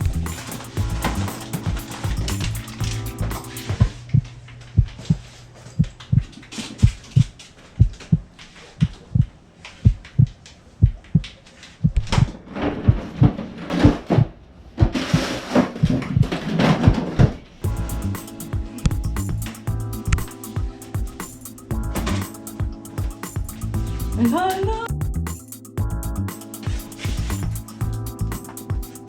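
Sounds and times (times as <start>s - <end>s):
heartbeat thumps: 0.0s - 4.0s, 17.6s - 29.0s
rustling and knocking: 0.0s - 4.0s, 6.1s - 24.2s, 25.1s - 29.0s.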